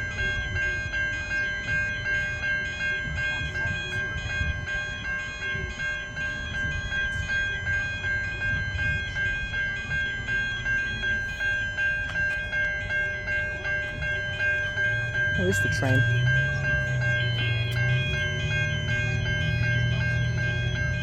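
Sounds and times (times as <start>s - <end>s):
level crossing bell ringing: 0.0s - 21.0s.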